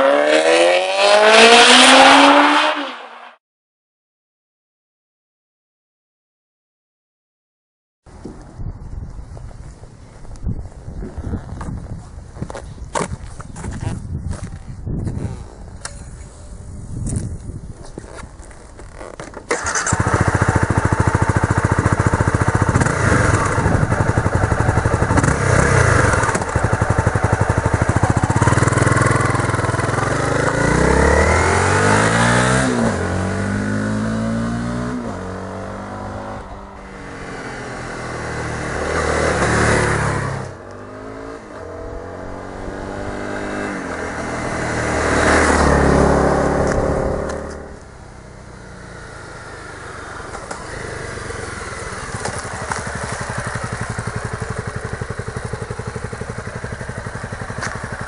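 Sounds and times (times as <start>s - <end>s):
motorcycle engine revving: 0.0s - 3.4s, 18.0s - 58.0s.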